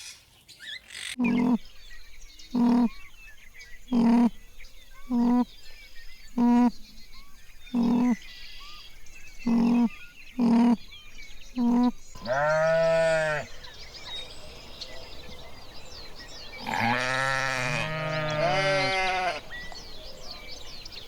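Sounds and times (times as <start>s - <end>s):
birds chirping faintly: 0.0s - 21.0s
animals bleating: 1.2s - 1.7s, 2.5s - 3.0s, 3.9s - 4.4s, 5.1s - 5.5s, 6.4s - 6.8s, 7.7s - 8.2s, 9.4s - 10.8s, 11.6s - 13.6s, 16.6s - 19.6s.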